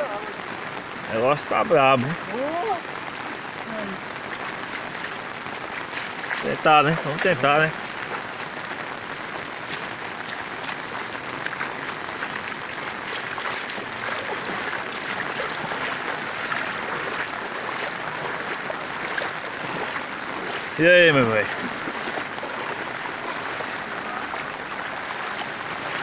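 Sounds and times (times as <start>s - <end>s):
faint splashes: 0.0s - 26.0s
water rushing: 0.0s - 26.0s.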